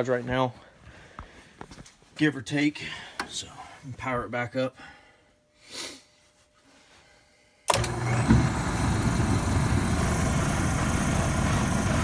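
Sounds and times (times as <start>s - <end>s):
burner starting with a jolt: 7.7s - 12.0s
oil burner rumbling with hiss: 7.7s - 12.0s.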